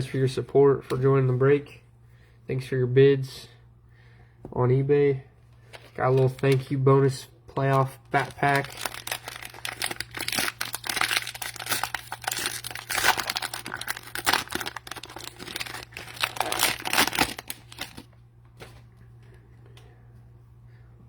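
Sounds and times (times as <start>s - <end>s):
wrapper tearing and crinkling: 8.1s - 18.1s.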